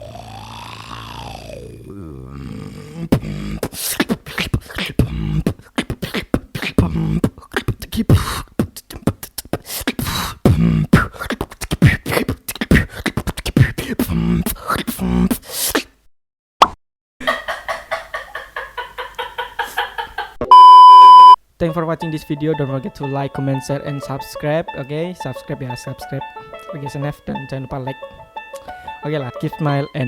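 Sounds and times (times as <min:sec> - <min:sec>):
man beatboxing: 0:03.1 - 0:16.0.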